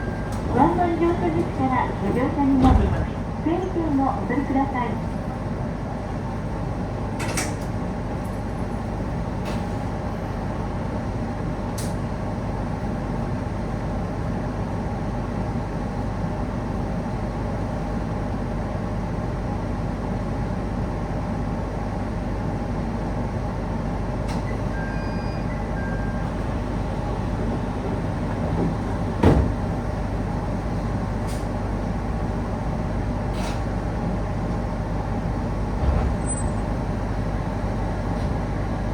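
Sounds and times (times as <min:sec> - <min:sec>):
train car rumble and hum: 0:00.0 - 0:38.9.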